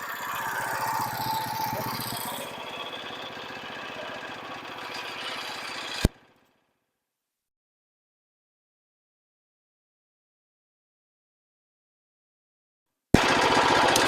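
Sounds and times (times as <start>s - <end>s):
small gasoline engine running: 0.0s - 6.6s, 13.2s - 14.0s.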